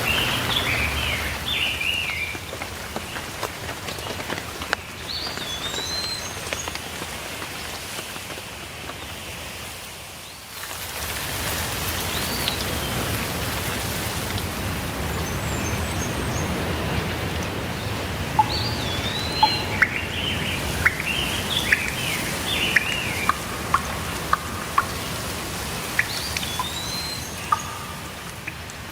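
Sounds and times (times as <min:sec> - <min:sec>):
birds calling: 0:00.0 - 0:02.6, 0:14.7 - 0:28.9
steady rainfall: 0:00.0 - 0:28.9.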